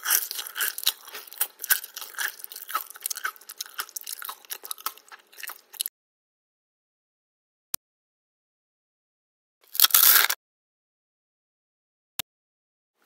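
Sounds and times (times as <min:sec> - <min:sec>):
crunchy chewing of crisp food: 0:00.0 - 0:05.9, 0:09.6 - 0:10.4.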